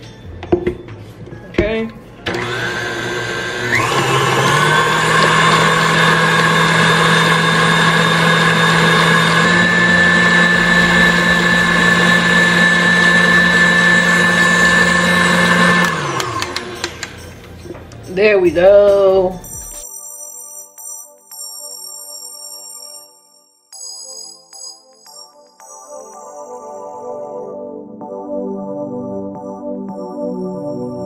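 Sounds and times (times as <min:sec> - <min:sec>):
kitchen appliance motor whining: 0:02.2 - 0:17.2.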